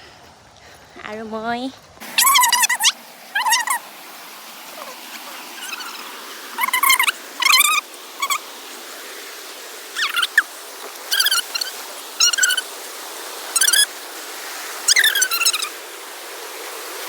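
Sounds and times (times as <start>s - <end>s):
bird squeaky calls: 2.2s - 3.9s, 4.8s - 8.4s, 10.0s - 10.5s, 11.1s - 12.7s, 13.6s - 13.9s, 14.9s - 15.8s.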